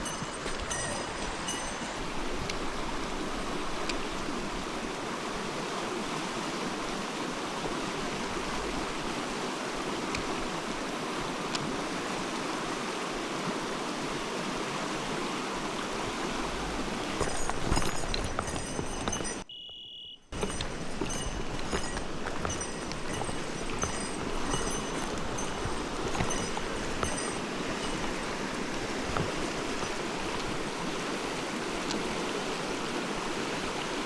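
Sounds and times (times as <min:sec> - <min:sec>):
mountain stream running: 0:00.0 - 0:19.4, 0:20.3 - 0:34.0.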